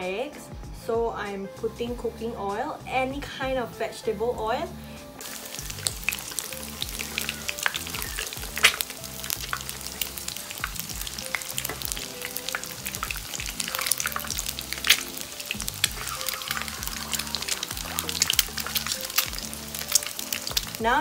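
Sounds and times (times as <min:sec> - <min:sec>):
eggs sizzling in hot oil: 0:04.8 - 0:21.0
sharp cracks: 0:05.2 - 0:20.9.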